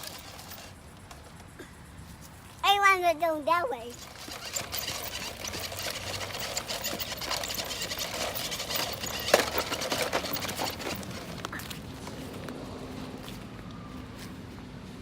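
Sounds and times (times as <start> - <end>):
toy electric motor buzzing: 3.9 - 11.3.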